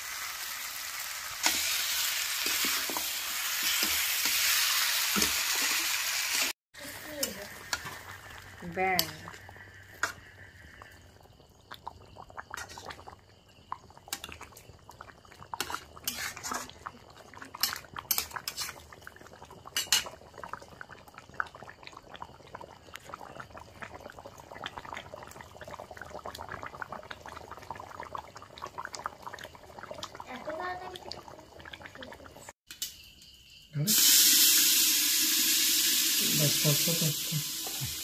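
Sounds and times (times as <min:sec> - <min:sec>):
gravy simmering and bubbling: 0:06.4 - 0:32.6
spatula scraping metal pot: 0:15.6 - 0:16.8, 0:17.6 - 0:18.8.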